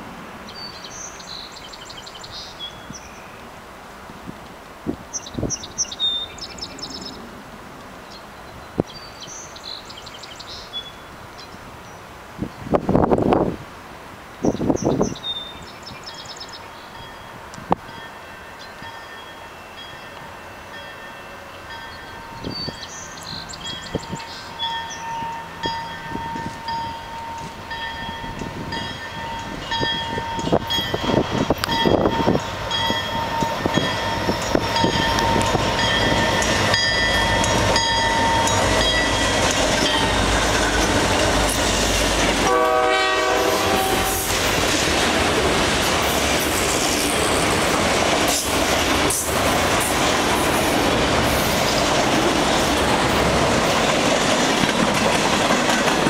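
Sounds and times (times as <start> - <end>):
locomotive engine rumble: 25.4 - 56.0
locomotive horn: 42.2 - 44.4.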